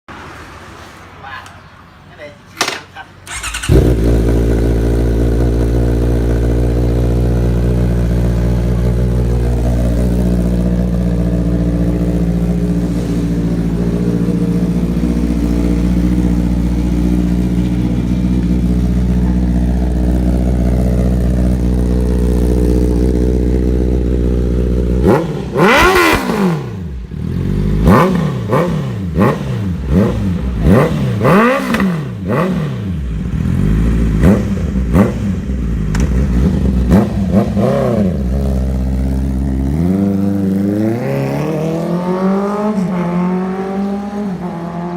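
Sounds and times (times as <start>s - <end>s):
motorcycle revving: 3.3s - 44.9s
motorcycle idling loudly: 3.4s - 12.7s, 13.6s - 25.0s.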